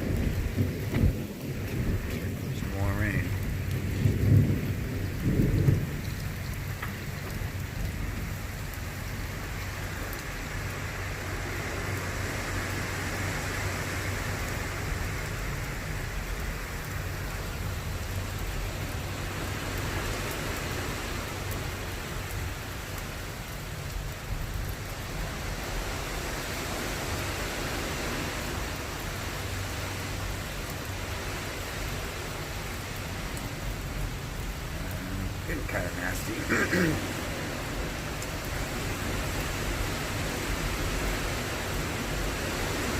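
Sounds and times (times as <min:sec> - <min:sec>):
steady rain: 0:00.0 - 0:42.9.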